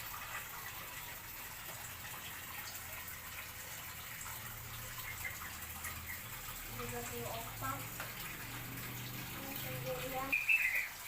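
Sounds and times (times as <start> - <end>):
faint bird chirps: 10.3 - 11.0.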